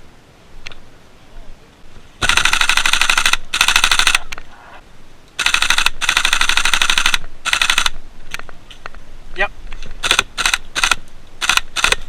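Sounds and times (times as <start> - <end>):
airsoft rifle bursts: 2.2 - 4.4, 5.4 - 8.0, 10.0 - 12.0.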